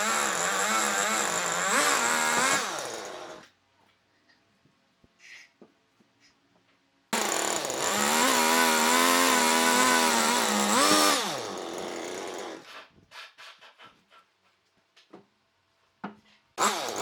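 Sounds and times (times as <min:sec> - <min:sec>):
chainsaw running at high revs: 0:00.0 - 0:03.4, 0:07.2 - 0:12.7, 0:16.6 - 0:17.0.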